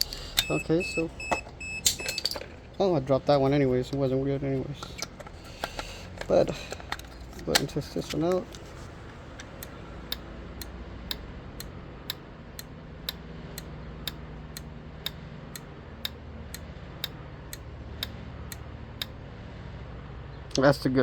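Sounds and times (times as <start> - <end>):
relay clicking on and off: 4.8 - 19.2.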